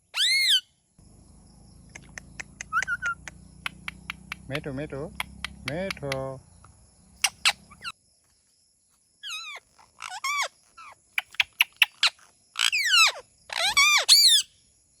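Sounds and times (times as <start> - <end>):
parrot clicks: 1.9 - 6.7
parrot squawking: 2.0 - 3.8, 7.2 - 7.9, 9.2 - 14.5.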